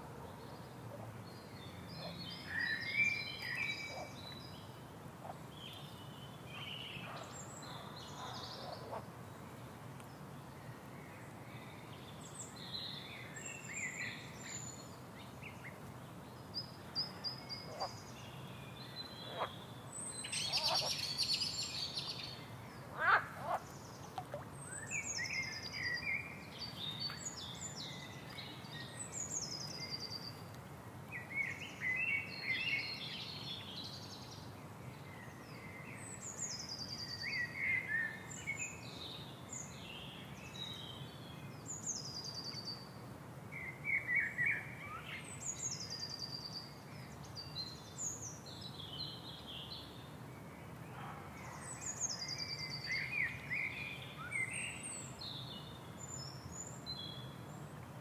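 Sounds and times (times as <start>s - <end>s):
birds chirping and twittering: 0.0s - 4.8s, 10.7s - 30.4s
low background noise: 0.0s - 58.0s.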